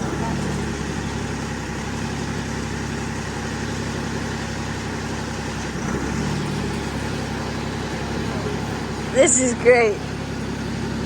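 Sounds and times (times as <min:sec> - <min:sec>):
diesel engine running at low revs: 0:00.0 - 0:11.0.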